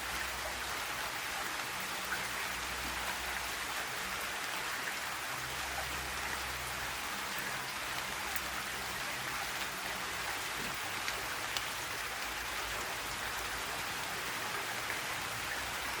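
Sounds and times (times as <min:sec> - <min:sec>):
rain pattering: 0:00.0 - 0:16.0
raindrops ticking: 0:05.4 - 0:16.0.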